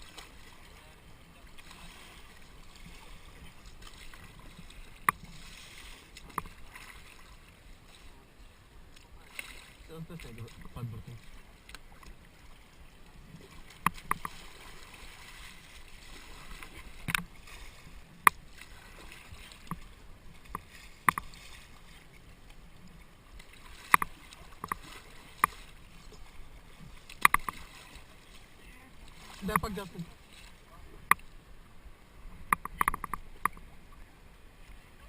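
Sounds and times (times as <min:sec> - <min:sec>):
river water washing: 0:00.0 - 0:35.0
paddle knocks and splashes: 0:01.6 - 0:07.4, 0:13.3 - 0:22.1, 0:23.3 - 0:31.3.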